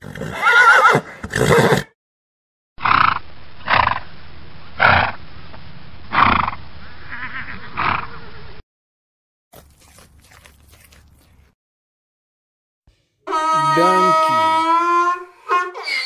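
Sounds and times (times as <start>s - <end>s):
horse neighing: 0.0s - 1.9s, 7.1s - 8.3s, 13.3s - 14.7s.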